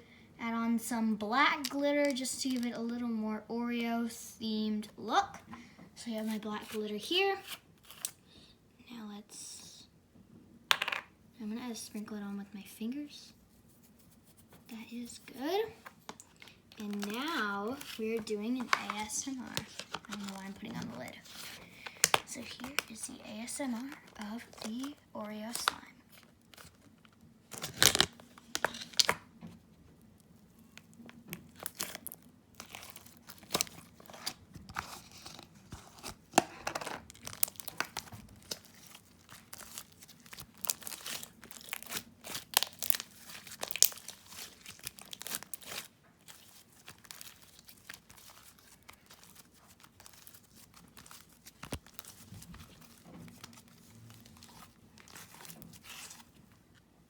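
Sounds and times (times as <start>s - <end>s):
sticky crackles and pops: 36.0s - 55.7s.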